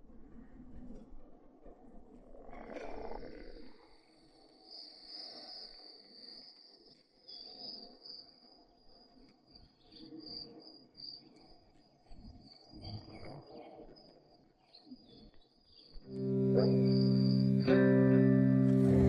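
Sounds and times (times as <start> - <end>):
insects chirring: 2.3 - 19.0
plucked guitar music: 16.1 - 19.0.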